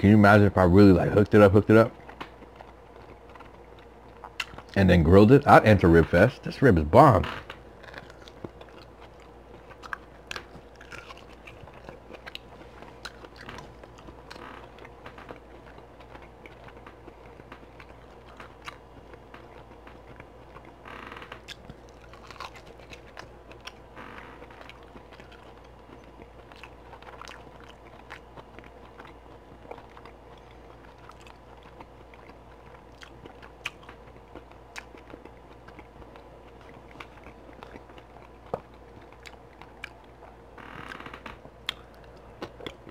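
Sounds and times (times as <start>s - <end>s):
person chewing meat: 0.5s - 6.5s, 7.5s - 42.9s
wet mouth clicks and smacks: 41.6s - 42.8s.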